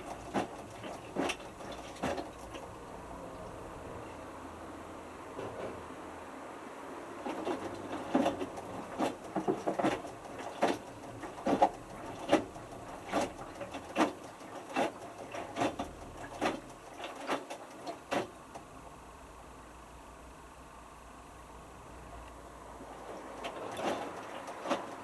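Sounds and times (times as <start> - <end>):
washing machine drum tumbling: 0.0 - 2.7, 7.1 - 18.6, 22.8 - 25.0
water sloshing: 0.0 - 2.8, 7.0 - 18.6, 22.5 - 25.0.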